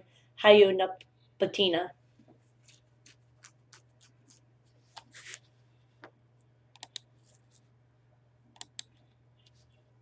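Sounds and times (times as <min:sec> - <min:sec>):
low electrical hum: 0:00.0 - 0:10.0
keyboard and mouse clicks: 0:06.7 - 0:07.1, 0:08.6 - 0:09.0.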